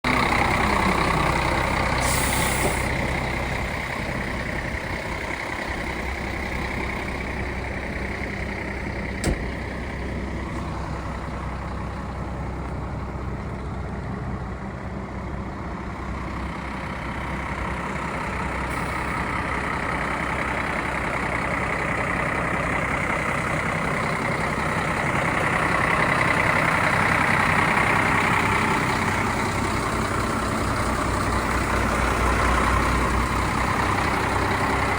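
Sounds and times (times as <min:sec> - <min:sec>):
diesel truck engine idling: 0:00.0 - 0:34.9
air hiss: 0:02.0 - 0:02.9.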